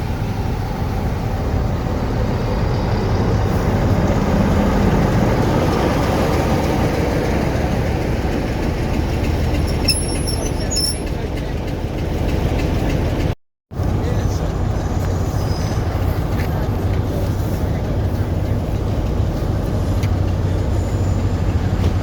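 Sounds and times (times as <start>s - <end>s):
train rumbling on rails: 0.0s - 22.0s
high-pitched wheel squeal: 9.6s - 11.2s, 15.2s - 16.2s.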